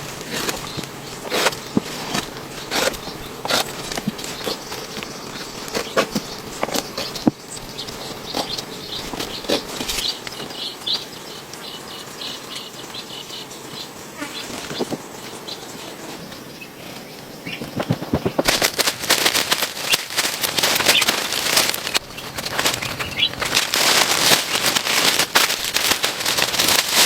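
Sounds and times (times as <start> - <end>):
sharp knocks and cracks: 17.6 - 27.0.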